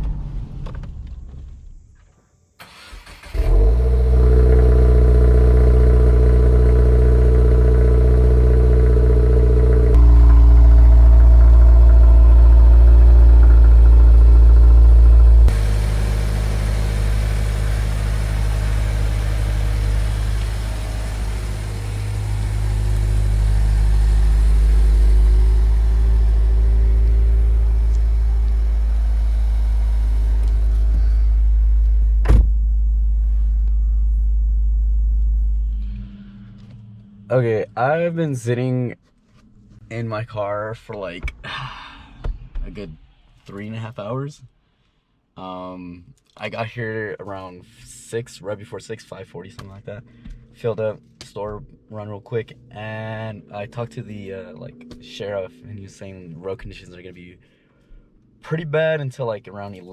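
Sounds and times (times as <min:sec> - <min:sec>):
car engine drone: 0:02.7 - 0:38.6
road rumble: 0:03.4 - 0:37.4.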